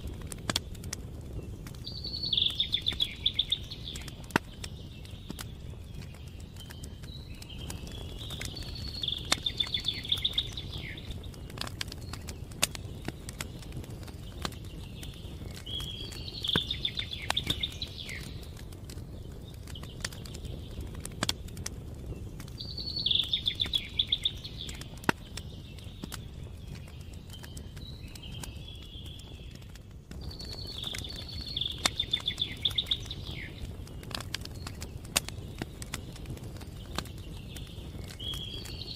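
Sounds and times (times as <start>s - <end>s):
crackling campfire with pops: 0.0s - 38.9s
songbird singing high notes: 1.9s - 4.0s, 7.1s - 11.2s, 22.6s - 25.0s, 30.3s - 33.7s.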